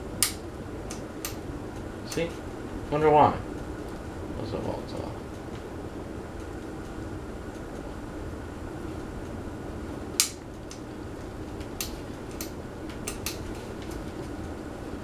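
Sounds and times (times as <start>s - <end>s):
sharp clicks: 0.2s - 2.4s, 10.2s - 10.9s, 11.6s - 13.5s.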